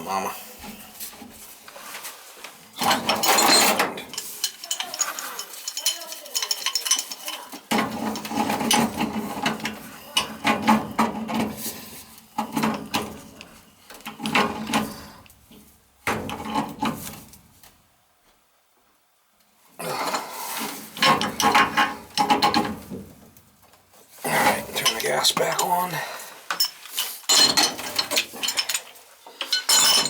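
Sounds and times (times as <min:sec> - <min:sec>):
metal parts and tools clattering: 0:02.8 - 0:13.4, 0:20.9 - 0:22.8, 0:24.4 - 0:25.9, 0:26.5 - 0:30.0.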